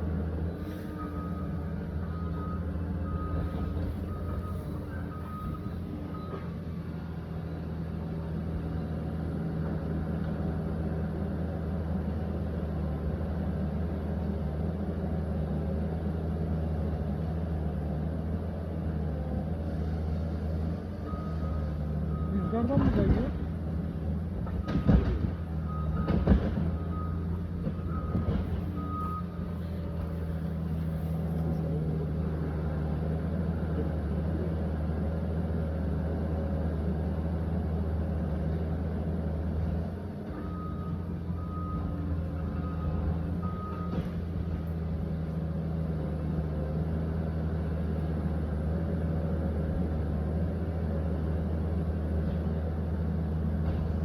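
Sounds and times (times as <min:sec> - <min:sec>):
bulldozer diesel engine running: 0:00.0 - 0:54.0
reversing alarm beeping: 0:00.9 - 0:06.6, 0:21.1 - 0:22.8, 0:25.7 - 0:29.8, 0:40.3 - 0:44.2.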